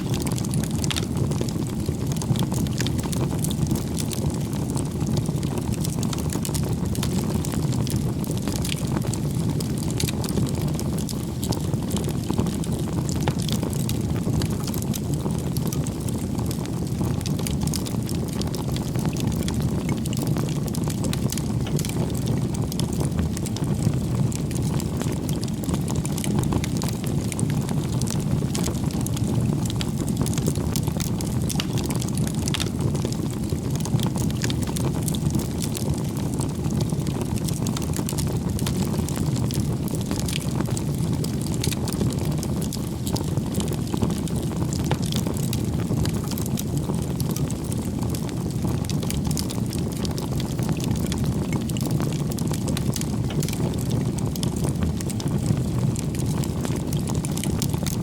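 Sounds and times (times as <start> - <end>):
firewood crackling and popping: 0.0 - 58.0
flames rushing: 0.0 - 58.0.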